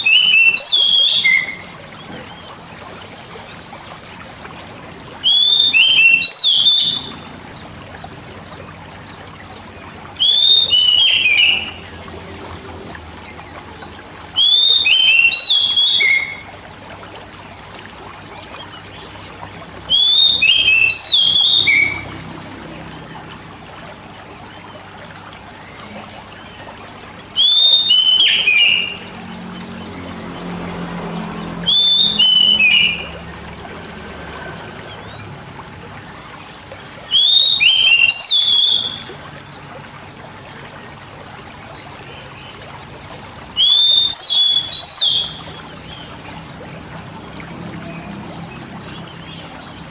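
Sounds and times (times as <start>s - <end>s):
magpie-robin whistling song: 0.0s - 2.3s, 5.2s - 7.3s, 10.2s - 12.0s, 14.4s - 17.4s, 19.9s - 22.1s, 27.4s - 29.1s, 31.6s - 33.2s, 37.1s - 39.2s, 43.5s - 46.2s.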